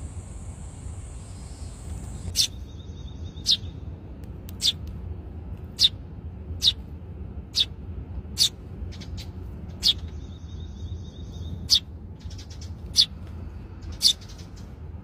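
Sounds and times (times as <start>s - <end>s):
low background rumble: 0.0s - 15.0s
sparrow chirps: 1.3s - 3.9s, 5.7s - 6.0s, 6.6s - 6.8s, 7.5s - 13.2s, 13.8s - 14.8s.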